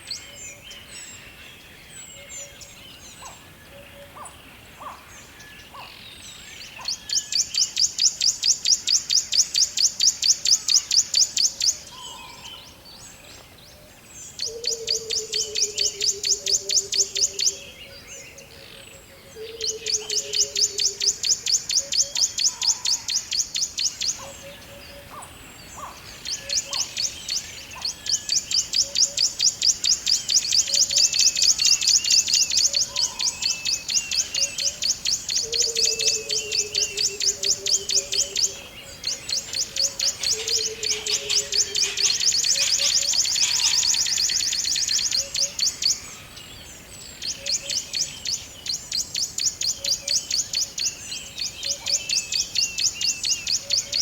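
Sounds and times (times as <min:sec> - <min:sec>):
bird chirps: 0:19.4 - 0:54.0.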